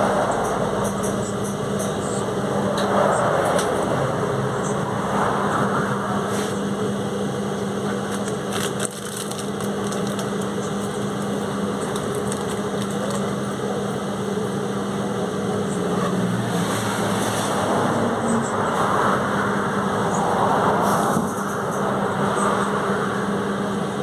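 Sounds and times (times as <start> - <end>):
bus diesel engine humming: 0.0 - 24.0
rattles and clicks: 7.9 - 13.4.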